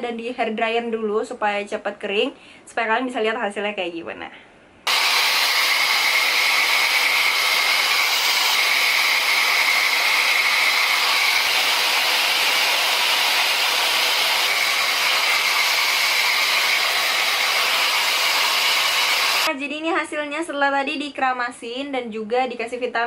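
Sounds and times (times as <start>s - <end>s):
hair dryer blowing: 4.9s - 19.5s.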